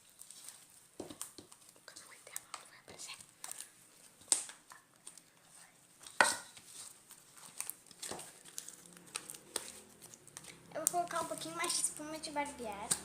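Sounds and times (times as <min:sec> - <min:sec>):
slime squelching: 0:06.0 - 0:13.0.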